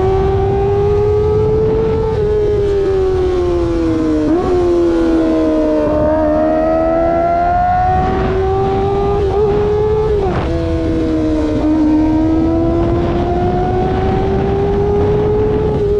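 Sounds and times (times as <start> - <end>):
motorcycle engine at high revs: 0.0 - 15.9
wind noise: 0.0 - 15.9.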